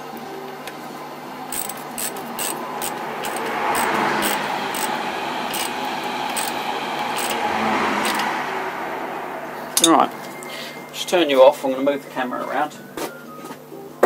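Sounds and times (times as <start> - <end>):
steady background noise: 0.0 - 14.0
sharp metallic clicks of tools: 1.5 - 8.3.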